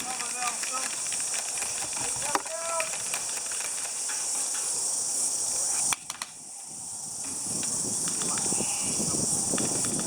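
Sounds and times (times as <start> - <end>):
sharp clicks: 0.0 - 4.2, 5.9 - 6.4, 7.6 - 8.6
insect chorus drone: 0.0 - 10.0.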